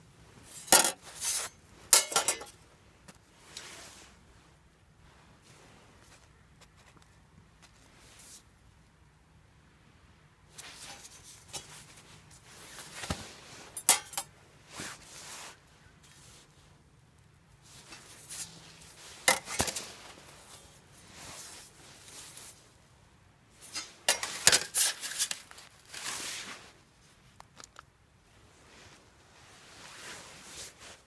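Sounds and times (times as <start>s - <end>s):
rustling: 0.3s - 8.6s, 10.5s - 16.8s, 17.5s - 22.9s, 23.5s - 31.0s
metal clinks and knocks: 2.0s - 2.6s, 13.8s - 14.3s.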